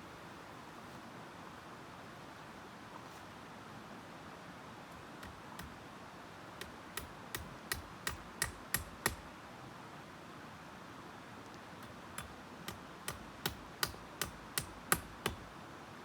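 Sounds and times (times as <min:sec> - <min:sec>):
sharp knocks: 0:11.8 - 0:15.4.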